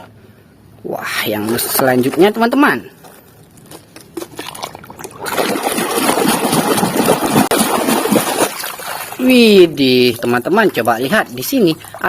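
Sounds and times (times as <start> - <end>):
water running and splashing: 4.2 - 12.0.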